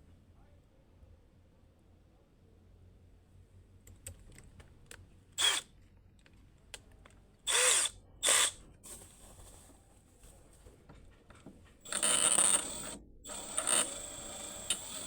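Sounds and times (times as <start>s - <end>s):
power drill whining: 5.4s - 5.6s, 7.5s - 8.6s, 11.8s - 15.0s.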